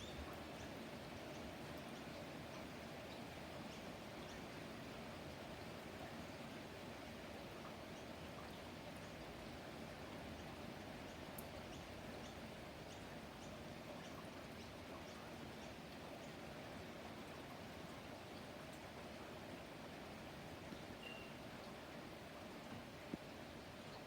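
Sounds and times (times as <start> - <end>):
songbird chirping faintly: 0.0 - 4.6, 20.7 - 21.4.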